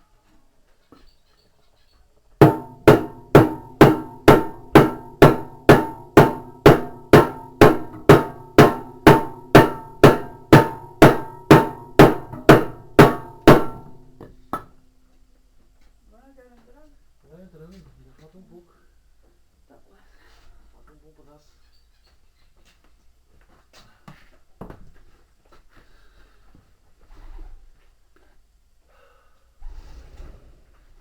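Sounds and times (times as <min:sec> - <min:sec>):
hammer blows on metal: 0:02.4 - 0:14.7.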